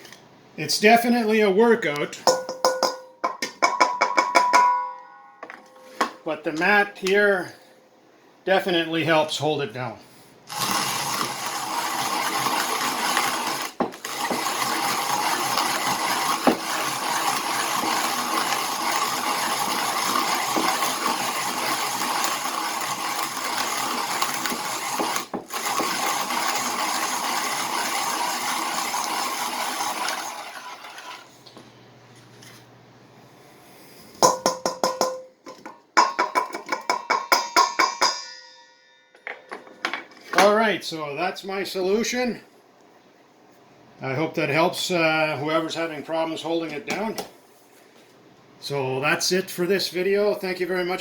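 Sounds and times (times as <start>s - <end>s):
hand coffee grinder grinding: 10.5s - 31.4s.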